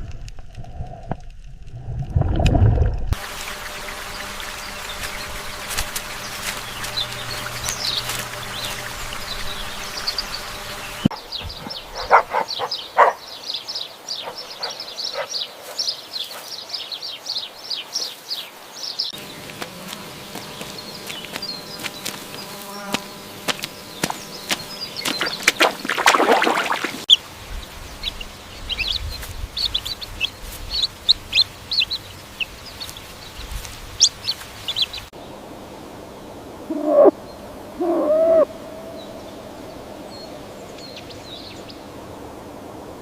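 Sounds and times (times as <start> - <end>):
steady hiss: 3.2 - 11.5
small birds chirping: 3.2 - 35.2, 36.7 - 42.0.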